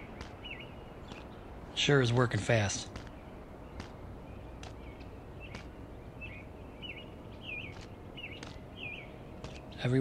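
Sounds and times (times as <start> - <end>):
low background noise: 0.0 - 10.0
small bird chirping: 0.0 - 10.0
faint clicks: 1.0 - 1.4, 4.6 - 5.8.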